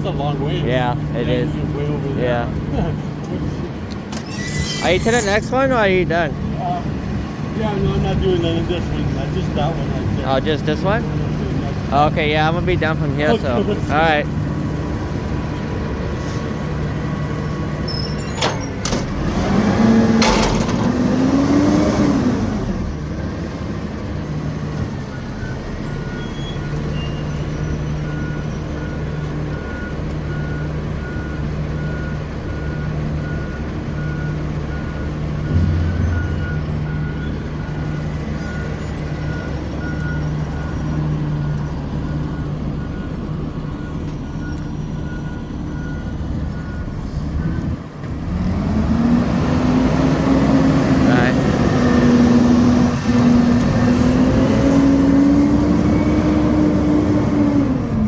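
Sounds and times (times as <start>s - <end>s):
diesel engine running: 0.0s - 58.0s
faint high beep: 25.4s - 31.3s, 35.4s - 47.1s.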